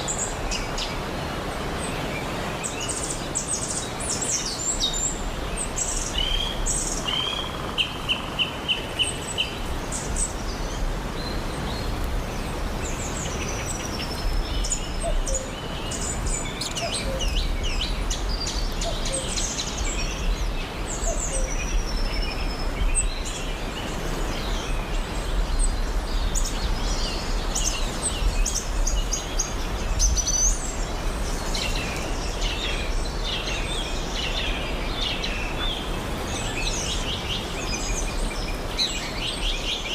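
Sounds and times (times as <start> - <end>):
birds chirping: 2.2 - 39.9.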